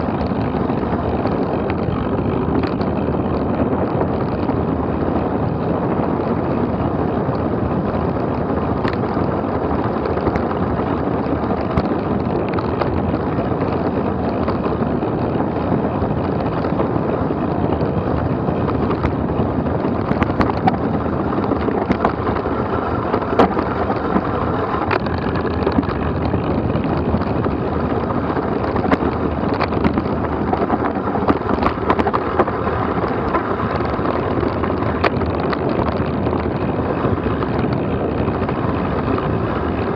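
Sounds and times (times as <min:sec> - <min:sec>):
tyres rumbling over rough trail: 0:00.0 - 0:39.9
wind buffeting microphone: 0:00.0 - 0:39.9
knocks and rattles: 0:09.9 - 0:39.9.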